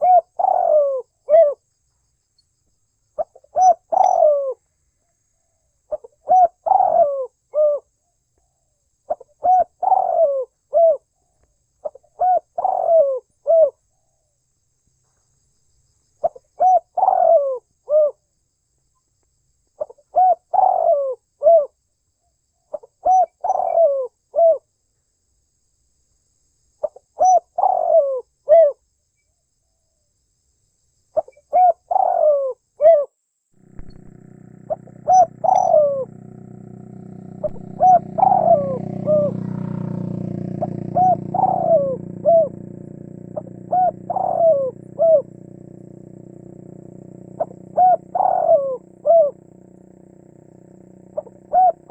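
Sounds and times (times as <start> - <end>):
dove cooing: 0.0 - 1.6, 3.2 - 4.6, 5.9 - 7.9, 9.1 - 11.0, 11.8 - 13.8, 16.2 - 18.2, 20.1 - 21.7, 23.0 - 24.6, 27.2 - 28.8, 31.2 - 33.1, 33.7 - 51.9.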